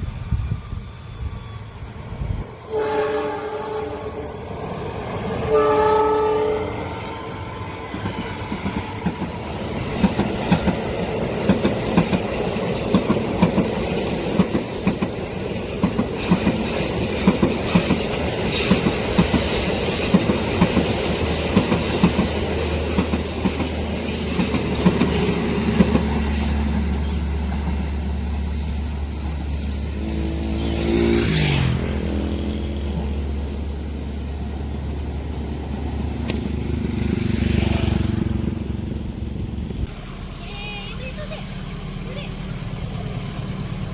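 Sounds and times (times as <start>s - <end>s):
train horn: 2.6s - 4.4s, 5.4s - 7.2s
train wheels clicking on rails: 6.6s - 38.7s.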